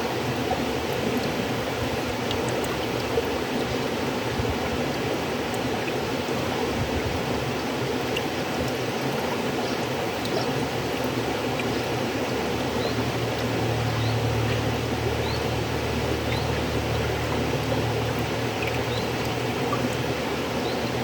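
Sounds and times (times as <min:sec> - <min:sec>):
river water rushing: 0:00.0 - 0:21.0
high water plinks: 0:09.8 - 0:21.0.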